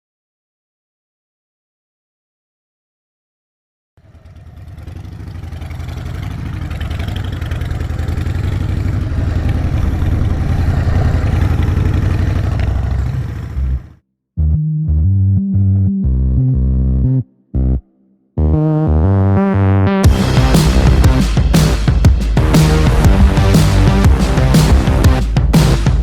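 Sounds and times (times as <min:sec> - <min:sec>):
vehicle engine idling: 0:04.0 - 0:13.9
synthesizer music: 0:18.4 - 0:26.0.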